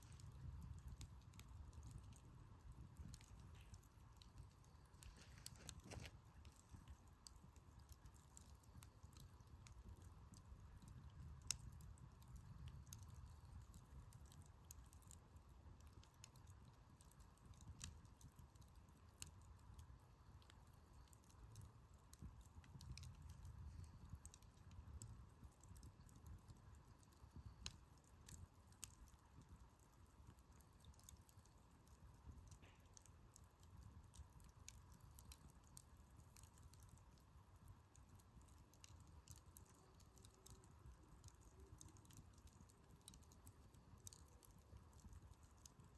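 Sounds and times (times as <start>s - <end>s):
campfire crackling and popping: 0.0s - 45.9s.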